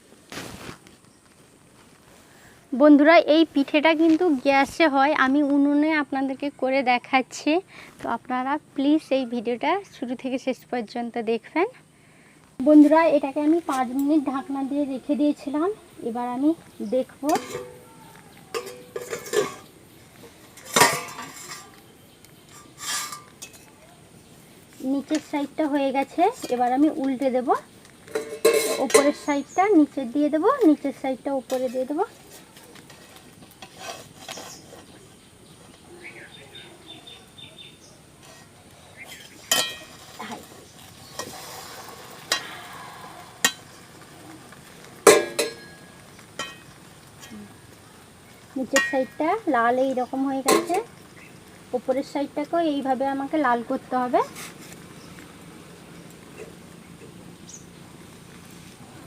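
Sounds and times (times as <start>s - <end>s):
oil sizzling: 12.4s - 59.0s
metal utensil clinking on a pan: 17.2s - 17.8s, 18.5s - 19.7s, 20.6s - 21.8s, 22.4s - 23.7s, 26.0s - 26.9s, 28.1s - 29.5s, 39.1s - 40.5s, 45.0s - 46.8s, 48.6s - 49.4s, 50.4s - 50.9s
cookware clanking and scraping: 17.2s - 17.9s, 18.5s - 21.8s, 22.4s - 23.7s, 25.1s - 27.2s, 28.0s - 29.6s, 31.5s - 35.0s, 38.2s - 42.6s, 45.0s - 46.8s, 48.7s - 49.3s, 50.4s - 50.9s.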